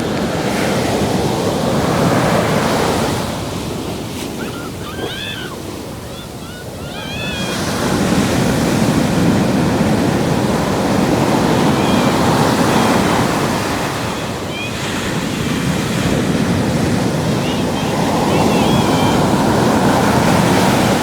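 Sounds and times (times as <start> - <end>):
ocean surf breaking on beach: 0.0 - 21.0
wind on microphone: 7.2 - 21.0.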